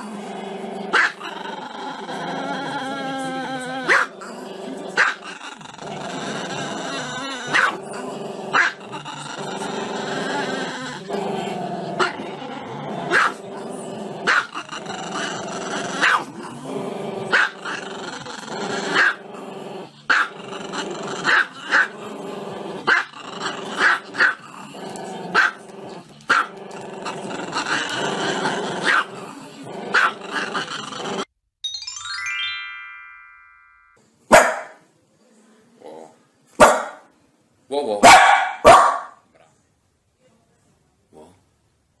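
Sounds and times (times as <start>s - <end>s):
dog barking: 0.9s - 1.2s, 3.9s - 4.1s, 7.5s - 7.8s, 8.5s - 8.8s, 13.1s - 13.4s, 14.3s - 14.5s, 16.0s - 16.3s, 17.3s - 17.6s, 20.1s - 20.3s, 25.4s - 25.6s, 28.8s - 29.1s, 34.3s - 34.8s, 36.6s - 37.1s, 38.0s - 39.2s.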